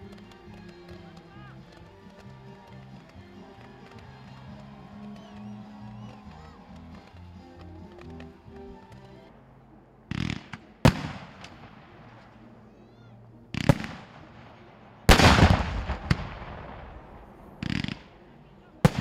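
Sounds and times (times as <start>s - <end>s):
fireworks crackling: 0.0s - 9.4s, 10.1s - 12.6s, 13.5s - 19.0s
fireworks bangs: 10.1s - 12.5s, 13.6s - 14.4s, 15.0s - 19.0s.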